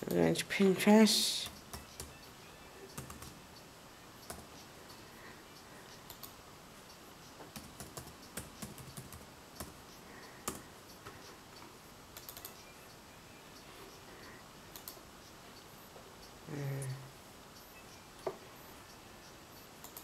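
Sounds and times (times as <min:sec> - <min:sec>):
computer keyboard keystrokes: 0:01.4 - 0:02.2, 0:02.9 - 0:03.4, 0:04.2 - 0:04.6, 0:07.5 - 0:09.8, 0:12.2 - 0:12.6, 0:14.7 - 0:15.0, 0:19.8 - 0:20.0.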